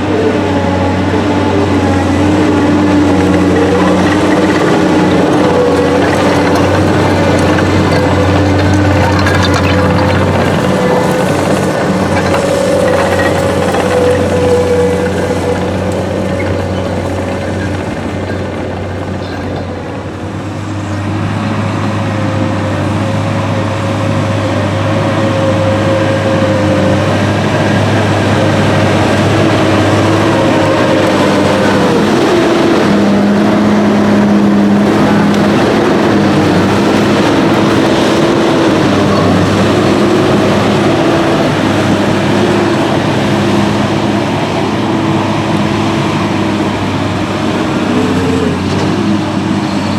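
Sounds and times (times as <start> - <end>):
heavy diesel machinery running: 0.0 - 49.9.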